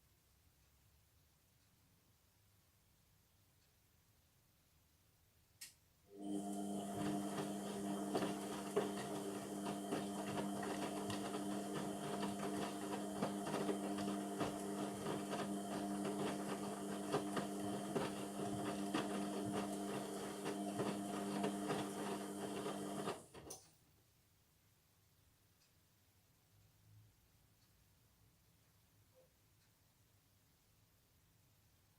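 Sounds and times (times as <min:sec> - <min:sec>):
washing machine humming: 0:06.1 - 0:23.5.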